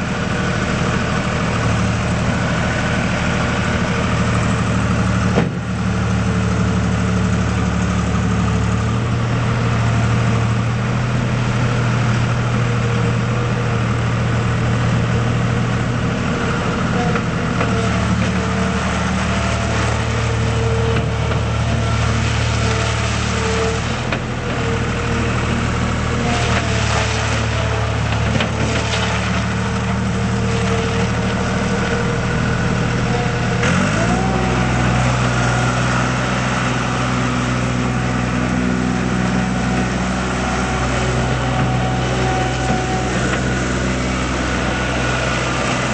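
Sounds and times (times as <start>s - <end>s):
diesel engine idling and revving: 0.0s - 45.9s.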